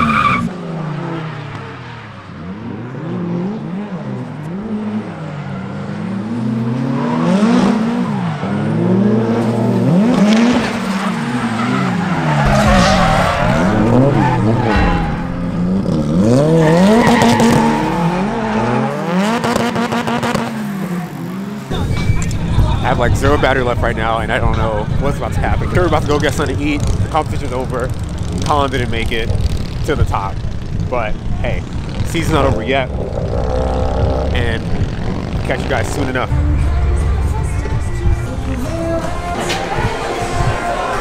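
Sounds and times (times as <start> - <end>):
car engines revving: 0.0 - 41.0
tyres squealing: 10.9 - 20.4.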